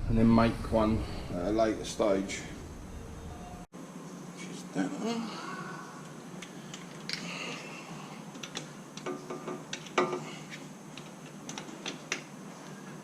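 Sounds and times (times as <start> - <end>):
small clicks and knocks: 8.3 - 10.2, 10.9 - 12.3.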